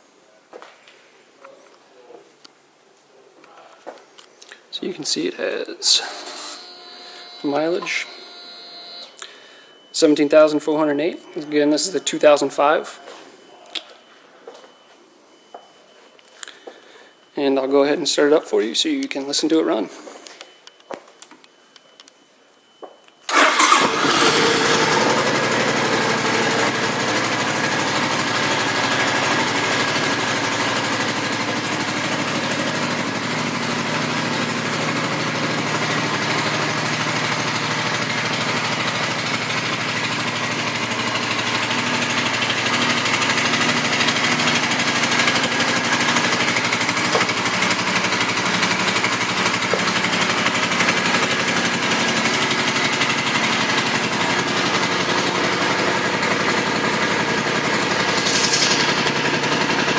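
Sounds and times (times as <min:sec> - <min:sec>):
motorcycle engine starting and running: 0:23.3 - 0:59.9.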